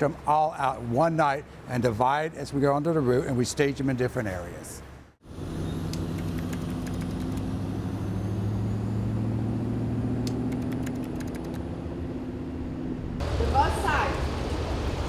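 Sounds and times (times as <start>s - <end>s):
diesel truck engine idling: 13.2s - 15.0s.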